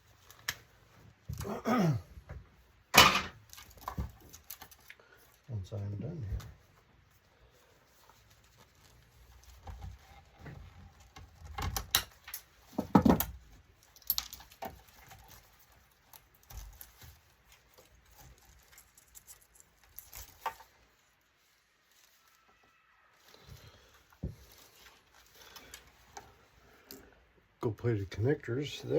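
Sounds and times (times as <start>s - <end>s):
plastic and metal parts clattering: 2.3s - 5.5s, 7.9s - 21.1s.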